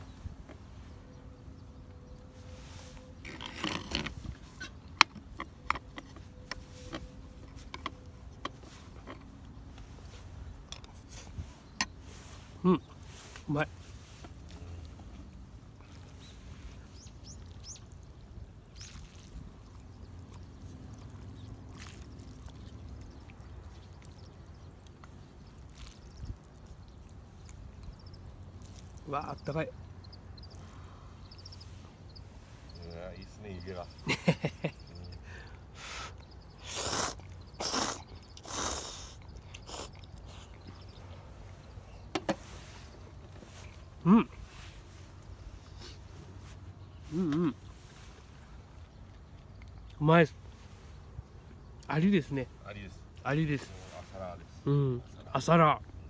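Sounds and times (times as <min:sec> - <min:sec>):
outdoor background noise: 0:00.0 - 0:56.0
bird chirps: 0:16.2 - 0:18.0, 0:27.4 - 0:44.0
person slurping noodles: 0:36.6 - 0:40.5.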